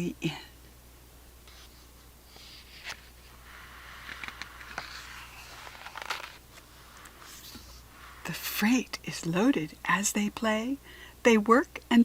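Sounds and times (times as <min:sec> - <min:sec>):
book pages rustling: 0:01.5 - 0:08.3.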